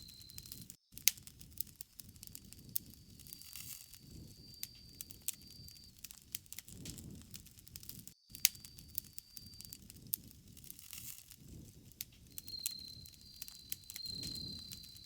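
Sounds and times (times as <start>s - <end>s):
burning wood popping and snapping: 0.0s - 15.0s
low rumble of flames: 0.0s - 15.0s.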